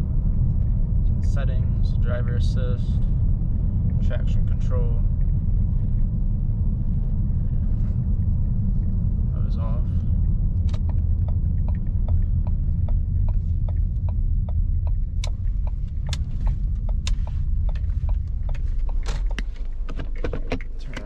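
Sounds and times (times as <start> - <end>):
car engine running: 0.0 - 21.0
even ticking: 10.2 - 21.0.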